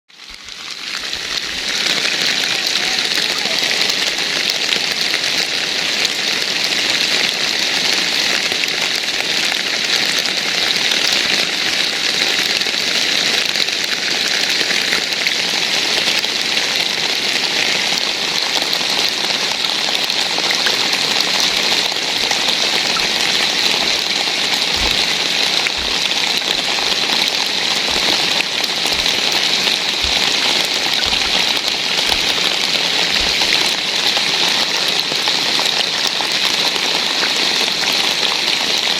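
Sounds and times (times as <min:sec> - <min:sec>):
steady rain falling: 0:00.1 - 0:38.9
dull low thumps: 0:24.6 - 0:32.4.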